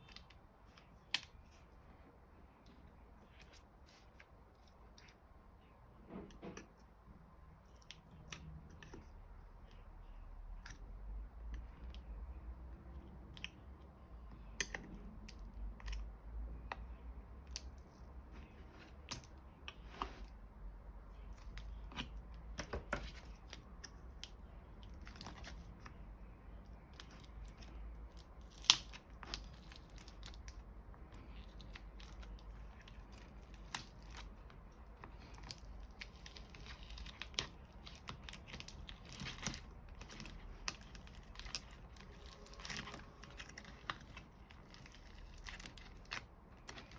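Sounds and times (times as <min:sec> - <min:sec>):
clicks scrapes and crinkling: 0:21.2 - 0:26.0, 0:26.6 - 0:46.9.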